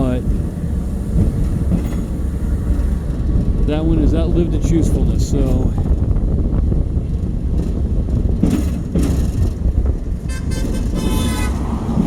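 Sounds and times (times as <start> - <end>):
train caboose rumbling: 0.0 - 12.0
car horns honking: 10.3 - 11.7.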